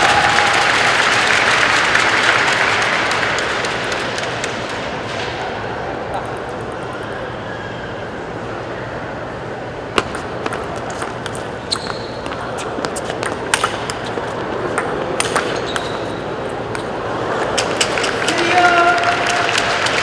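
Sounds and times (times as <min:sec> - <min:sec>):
crowd murmur: 0:00.0 - 0:20.0
table tennis ball clicking: 0:10.0 - 0:18.6.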